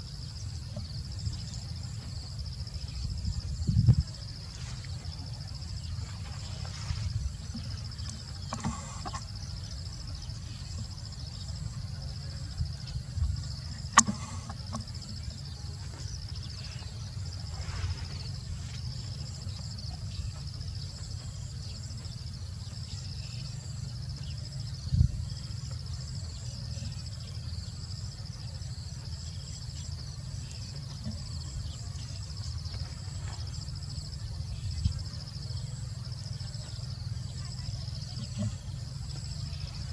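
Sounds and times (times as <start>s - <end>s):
high insect drone: 0.0s - 39.9s
thump: 14.0s - 14.8s
sharp click: 14.0s - 14.9s.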